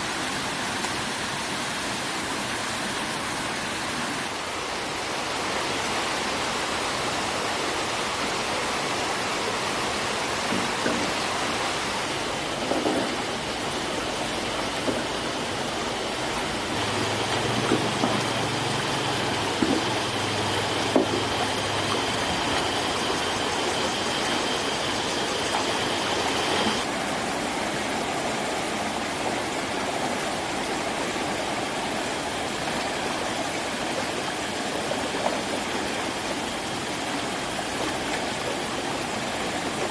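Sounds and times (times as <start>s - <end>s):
river water rushing: 0.0s - 39.9s
high steady tone: 16.5s - 26.8s.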